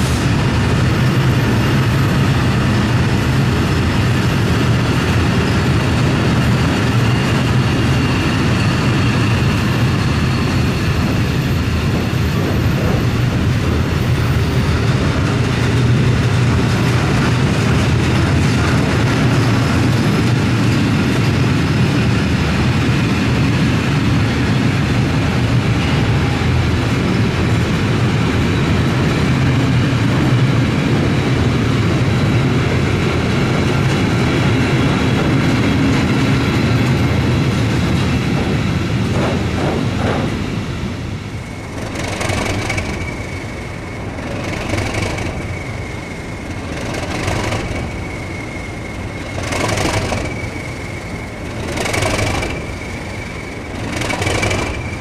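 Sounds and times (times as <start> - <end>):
train rumbling past: 0.0 - 55.0.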